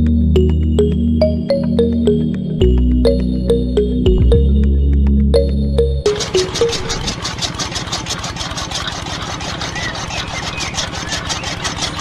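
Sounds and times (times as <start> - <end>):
background music: 0.0 - 7.1
small machine clattering: 6.1 - 12.0.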